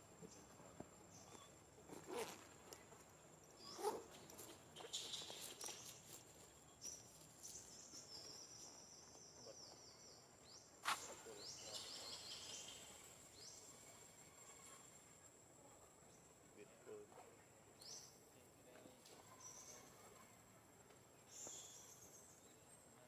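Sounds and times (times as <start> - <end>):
small birds chirping: 0.2 - 14.9, 21.2 - 23.0.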